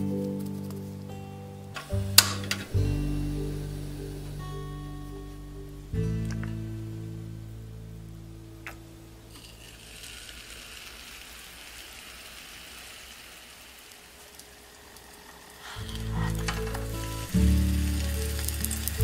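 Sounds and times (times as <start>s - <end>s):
background music: 0.0s - 9.9s, 15.8s - 19.0s
faint sizzle of frying: 8.6s - 19.0s.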